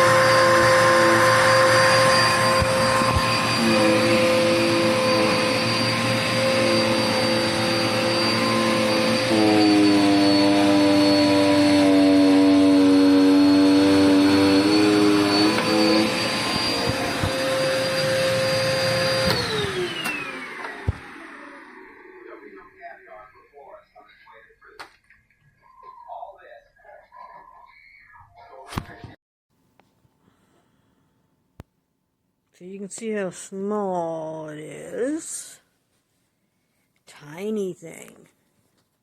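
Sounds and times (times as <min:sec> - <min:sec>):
vacuum cleaner motor whine: 0:00.0 - 0:22.8.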